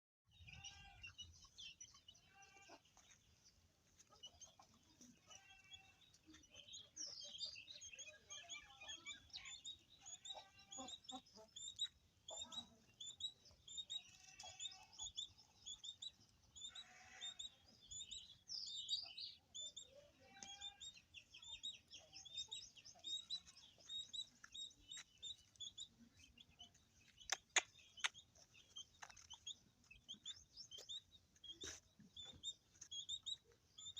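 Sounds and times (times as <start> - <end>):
small birds chirping: 0.3 - 33.9
goats bleating: 2.2 - 2.9, 5.2 - 6.0, 16.7 - 17.5
sharp clicks: 27.2 - 28.3.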